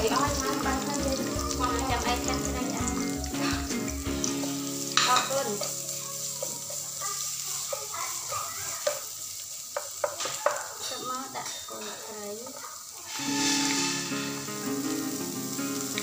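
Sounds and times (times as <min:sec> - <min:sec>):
chili paste sizzling in hot oil: 0:00.0 - 0:16.0
spatula scraping and tapping pan: 0:03.4 - 0:14.7.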